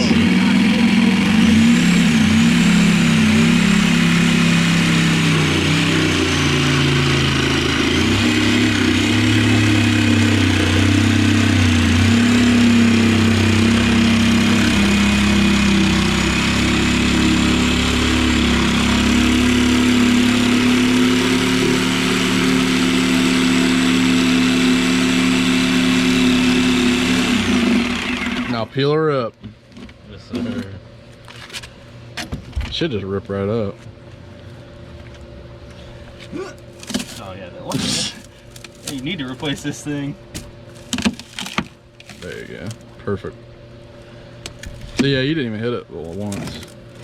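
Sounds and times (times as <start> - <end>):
electric saw cutting fiberglass: 0.0 - 28.7, 46.0 - 47.0.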